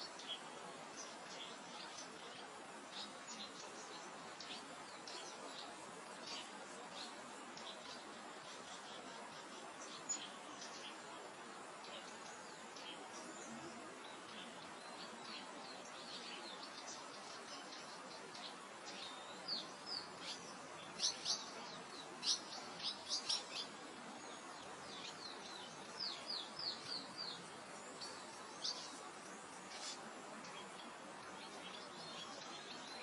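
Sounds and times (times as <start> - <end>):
small birds chirping: 0.0 - 33.0
soft wind hiss: 0.0 - 33.0.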